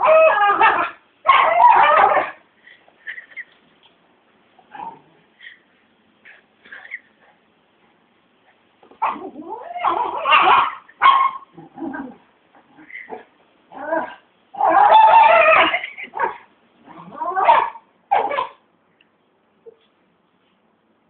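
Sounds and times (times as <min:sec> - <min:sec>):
dog screaming and yipping: 0:00.0 - 0:02.4, 0:09.0 - 0:12.1, 0:12.8 - 0:16.4, 0:17.1 - 0:18.6.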